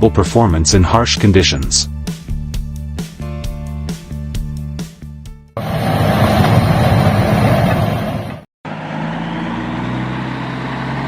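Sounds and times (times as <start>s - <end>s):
bulldozer diesel engine running roughly: 5.6s - 11.0s
engine hum with low drone: 5.6s - 11.0s.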